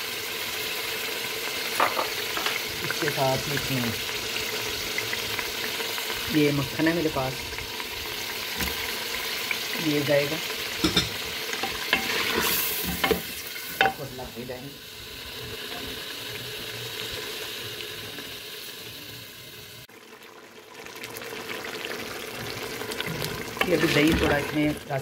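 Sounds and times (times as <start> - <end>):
meat sizzling in a pot: 0.0 - 25.0.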